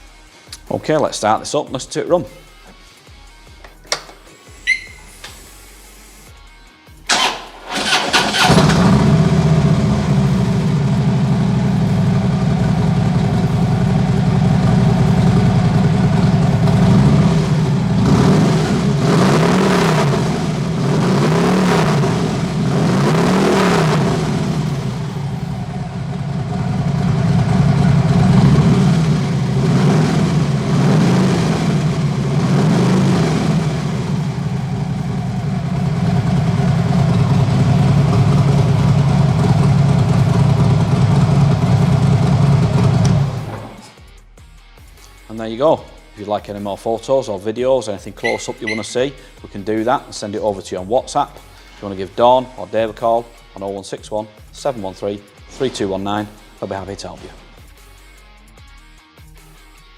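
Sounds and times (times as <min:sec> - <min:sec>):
motorcycle engine idling: 0:07.1 - 0:19.1, 0:21.9 - 0:22.8, 0:23.5 - 0:32.5, 0:33.4 - 0:43.8
motorcycle engine revving: 0:07.1 - 0:43.8
motorcycle engine starting: 0:07.1 - 0:43.8, 0:48.2 - 0:49.1.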